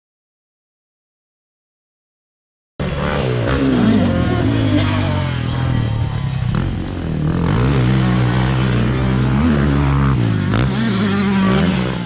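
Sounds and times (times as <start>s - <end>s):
dirt bike engine revving: 2.8s - 12.0s.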